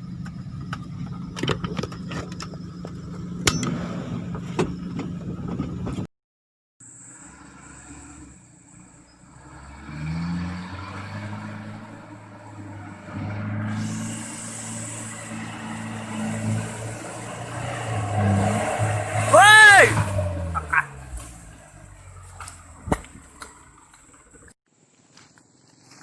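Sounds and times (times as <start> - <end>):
truck engine revving: 6.9 - 24.6.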